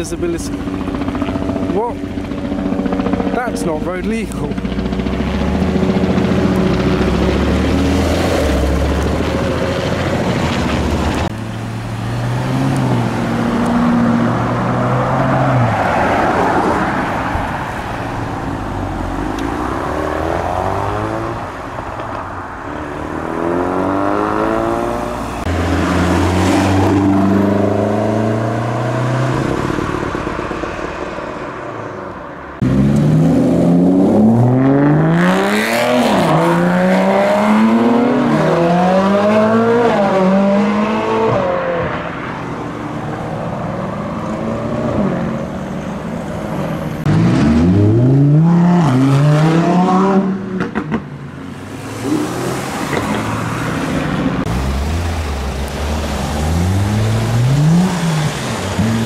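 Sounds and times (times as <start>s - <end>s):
car engines revving: 0.0s - 59.0s
car accelerating away: 4.6s - 17.7s, 18.3s - 21.6s, 22.6s - 30.6s, 32.6s - 42.1s, 46.9s - 59.0s.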